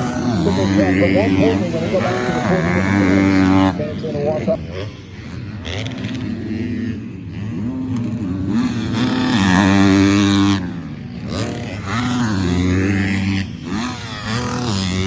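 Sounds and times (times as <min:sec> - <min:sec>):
motocross bikes revving: 0:00.0 - 0:04.6.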